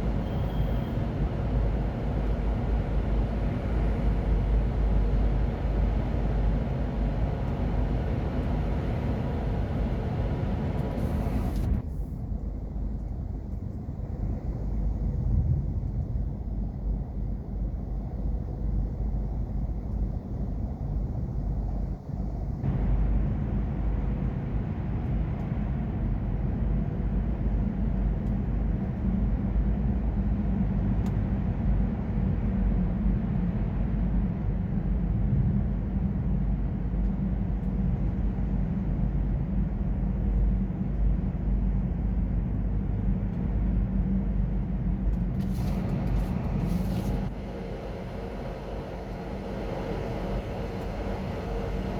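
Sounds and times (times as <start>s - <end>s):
heavy truck engine rumble: 0.0s - 13.0s, 44.7s - 51.9s.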